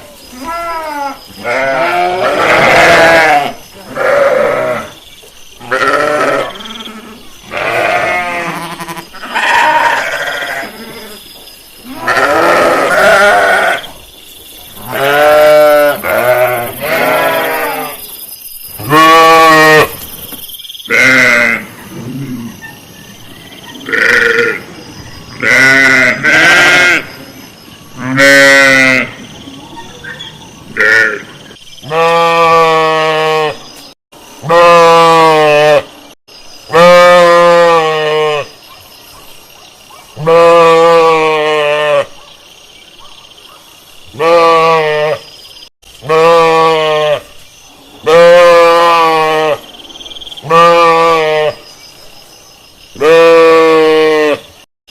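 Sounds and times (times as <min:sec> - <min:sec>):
sheep bleating: 0:00.4 - 0:04.9, 0:05.6 - 0:11.1, 0:11.9 - 0:13.8, 0:14.8 - 0:18.0, 0:20.9 - 0:21.7, 0:25.4 - 0:27.1, 0:44.2 - 0:45.2, 0:46.0 - 0:47.3, 0:50.5 - 0:51.5, 0:53.0 - 0:54.4.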